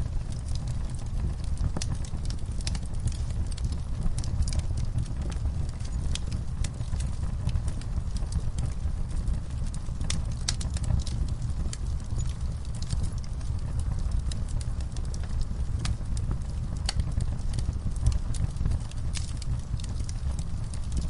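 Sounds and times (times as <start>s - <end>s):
fire crackling and popping: 0.0s - 21.0s
fire low rumble: 0.0s - 21.0s.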